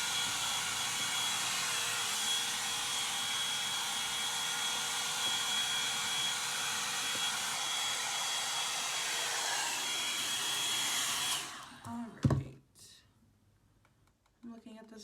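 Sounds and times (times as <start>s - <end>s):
hair dryer blowing with whine: 0.0s - 12.0s.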